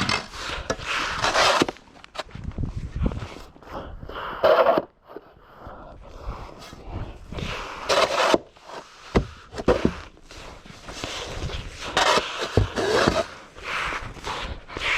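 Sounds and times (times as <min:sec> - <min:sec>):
snow scraping and crunching: 0:00.0 - 0:03.6, 0:09.7 - 0:14.9.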